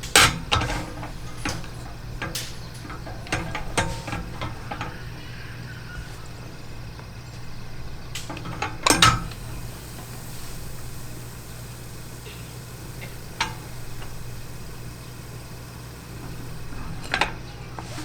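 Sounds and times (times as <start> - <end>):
dishes clinking and knocking: 0.0 - 10.9
steady low hum: 0.0 - 18.0.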